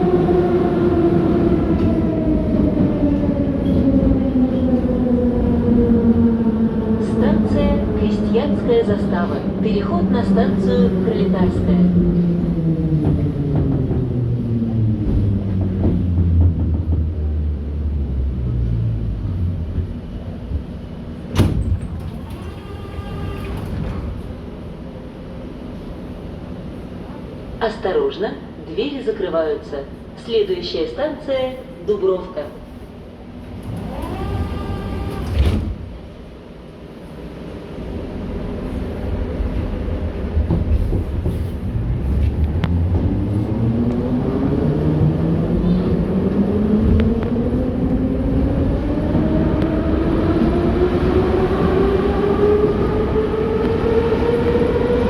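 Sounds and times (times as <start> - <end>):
train rumble: 0.0 - 55.0
pneumatic sliding doors thud: 21.3 - 24.2, 33.6 - 35.9.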